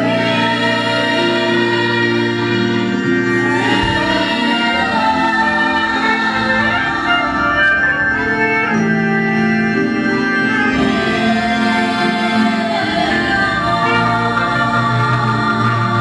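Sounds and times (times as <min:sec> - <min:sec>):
electric organ chords: 0:12.6 - 0:16.0.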